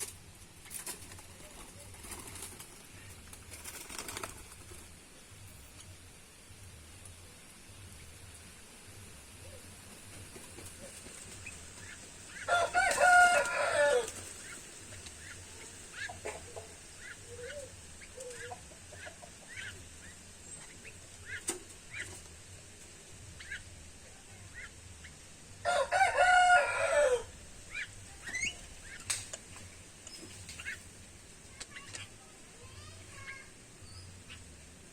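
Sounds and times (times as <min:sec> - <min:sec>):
rooster crowing: 0:12.5 - 0:14.2, 0:25.6 - 0:27.4.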